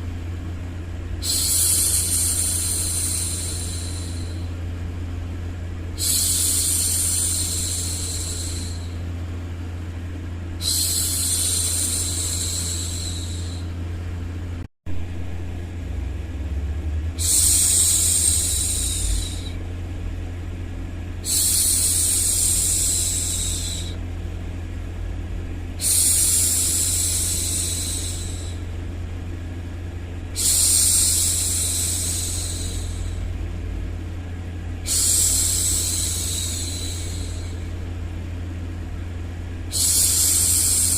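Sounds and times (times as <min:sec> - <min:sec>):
low hum: 0:00.0 - 0:40.9
white noise: 0:00.0 - 0:40.9
woman hushing shhh: 0:01.2 - 0:04.6, 0:06.0 - 0:09.0, 0:10.6 - 0:13.7, 0:17.2 - 0:19.6, 0:21.2 - 0:24.0, 0:25.8 - 0:28.7, 0:30.4 - 0:33.3, 0:34.8 - 0:37.8, 0:39.6 - 0:40.9.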